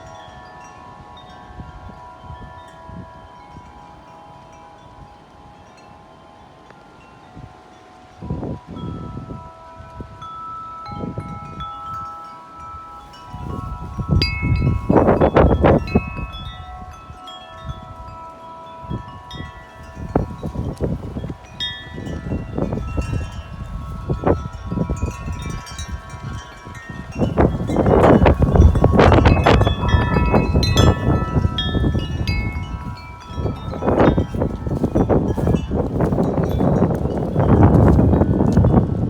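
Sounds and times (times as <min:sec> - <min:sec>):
wind buffeting microphone: 0:00.0 - 0:05.9, 0:08.1 - 0:39.0
wind chimes ringing: 0:00.0 - 0:39.0.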